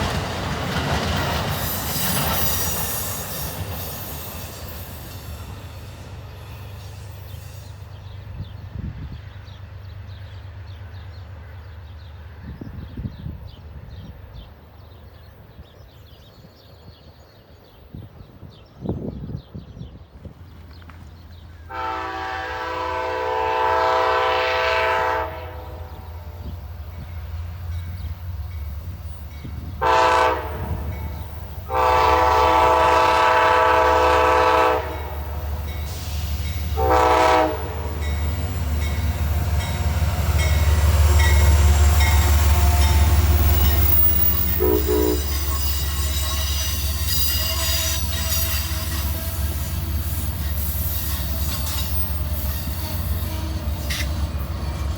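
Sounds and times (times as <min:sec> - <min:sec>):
train rumble: 0:00.0 - 0:54.9
locomotive air horn blasts: 0:21.7 - 0:26.5, 0:29.8 - 0:30.9, 0:31.6 - 0:35.2, 0:36.6 - 0:38.3, 0:44.4 - 0:50.0.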